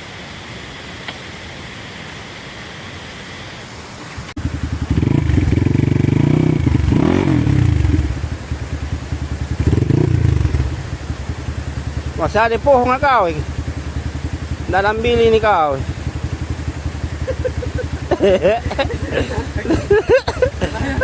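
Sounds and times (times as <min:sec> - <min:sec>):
steady hiss: 0:00.0 - 0:21.0
dirt bike engine revving: 0:04.4 - 0:21.0.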